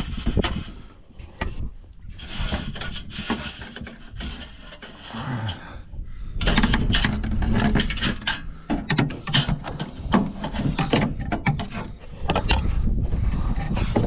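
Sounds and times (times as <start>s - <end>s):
knocks and clicks against wood: 6.4s - 12.8s
hands rummaging and scraping: 6.4s - 14.0s.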